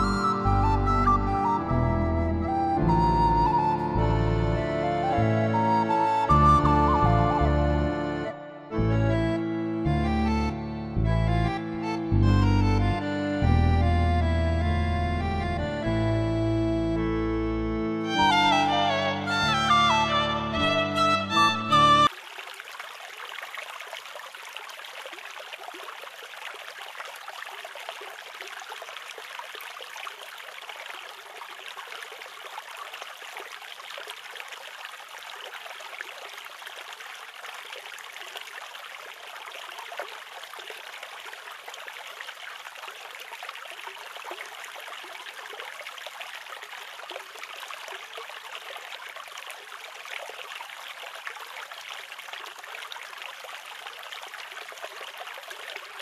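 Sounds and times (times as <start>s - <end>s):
shallow stream trickling: 21.9s - 56.0s.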